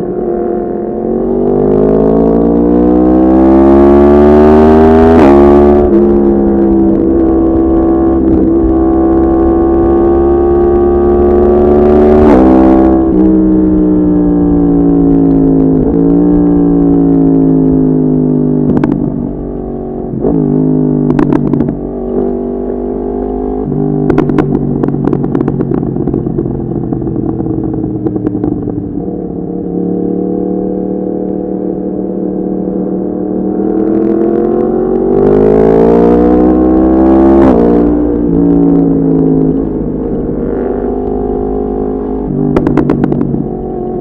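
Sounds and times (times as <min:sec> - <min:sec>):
motorcycle engine: 0:00.0 - 0:44.0
exhaust crackles: 0:42.2 - 0:44.0.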